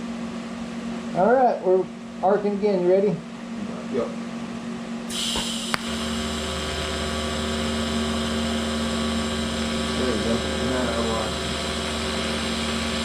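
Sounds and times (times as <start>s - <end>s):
welding arc hiss and hum: 5.0s - 13.0s.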